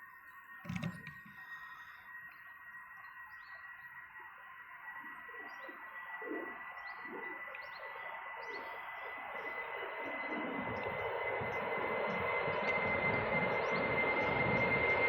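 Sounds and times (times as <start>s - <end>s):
distant jet engines whine: 0.0s - 15.0s
small birds chirping: 4.9s - 15.0s.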